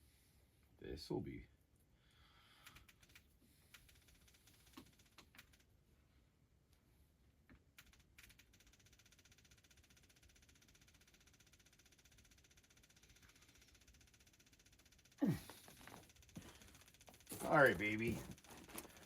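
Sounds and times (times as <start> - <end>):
faint fast ticking: 2.4 - 5.7, 7.8 - 19.0
faint clicks: 2.6 - 5.6.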